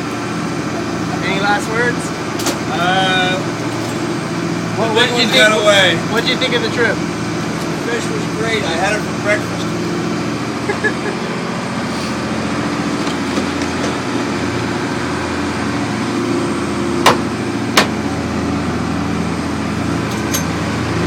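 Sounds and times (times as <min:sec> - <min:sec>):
boat engine running: 0:00.0 - 0:21.0
sharp knocks: 0:17.0 - 0:18.0.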